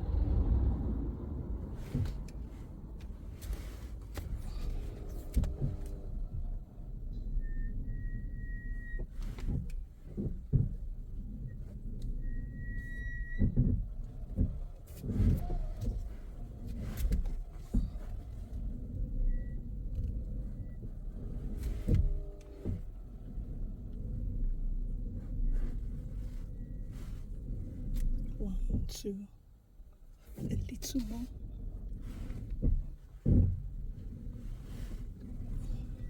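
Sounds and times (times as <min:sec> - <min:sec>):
car engine and tyre rumble: 0:00.0 - 0:36.0
sharp knocks and thumps: 0:32.5 - 0:34.1.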